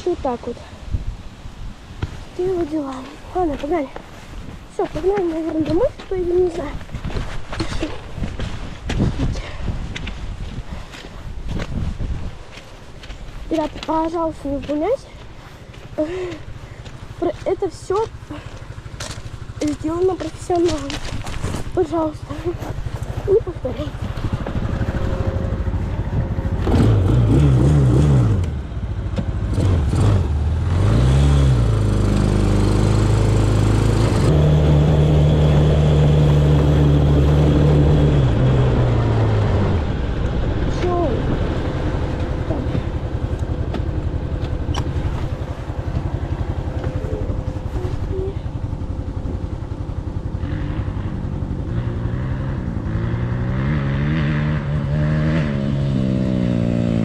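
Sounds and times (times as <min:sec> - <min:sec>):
off-road vehicle engine revving: 0:15.9 - 0:57.0.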